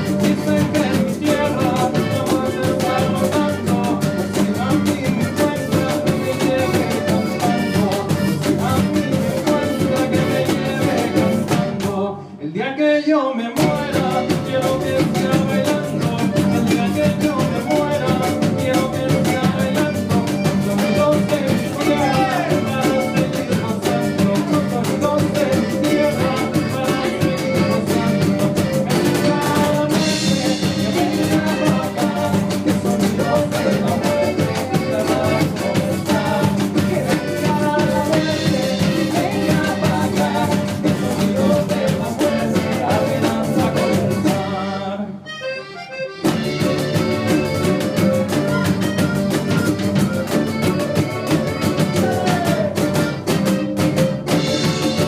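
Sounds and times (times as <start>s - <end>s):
drums beating: 0.0s - 12.0s, 13.6s - 44.6s, 46.2s - 55.0s
live band playing: 0.0s - 12.3s, 13.6s - 55.0s.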